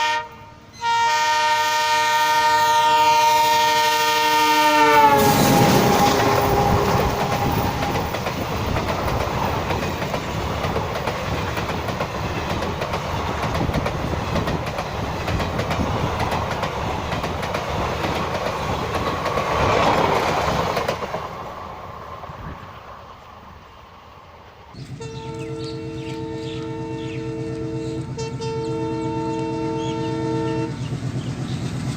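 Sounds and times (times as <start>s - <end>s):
train horn: 0.0s - 8.1s, 24.7s - 30.9s
train coaches rumbling: 0.0s - 31.9s
wheels clacking over rail joints: 5.2s - 21.5s.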